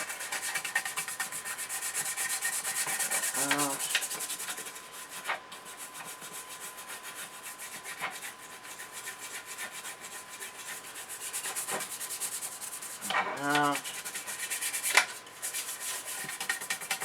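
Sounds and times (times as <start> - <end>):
brisk scrubbing of metal parts: 0.0 - 4.7.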